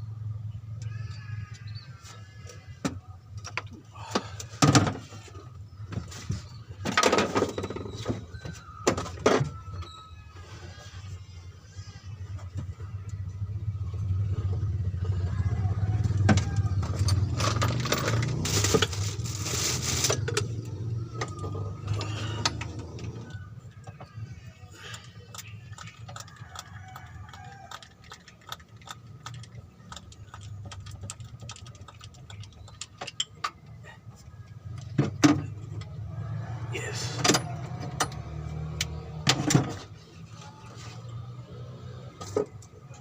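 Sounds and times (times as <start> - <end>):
vehicle engine running: 10.5 - 43.0
metal tools clicking and rattling: 27.8 - 33.7.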